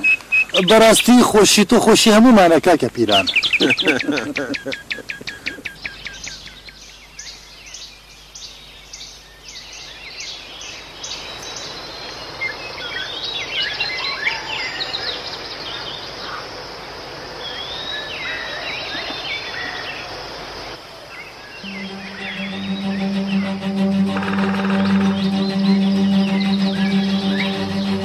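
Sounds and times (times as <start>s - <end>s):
bird high chirp: 3.2s - 10.4s
birds whistling and trilling: 3.2s - 12.1s.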